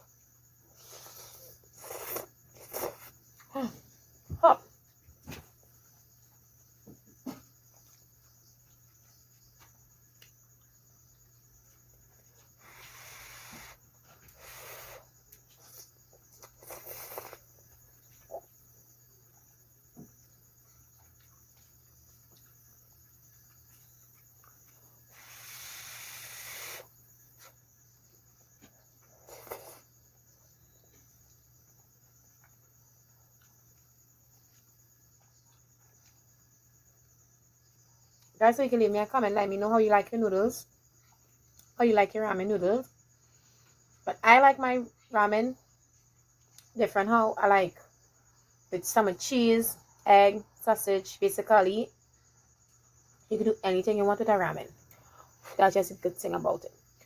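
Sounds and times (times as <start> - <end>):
person slurping noodles: 0.8 - 3.1, 29.2 - 29.9.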